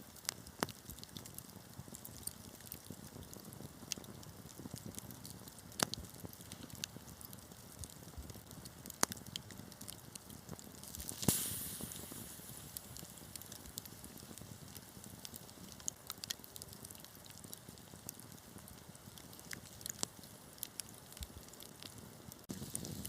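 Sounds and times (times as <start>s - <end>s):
wood fire crackling and popping: 0.0s - 23.0s
brief hiss: 11.0s - 12.9s.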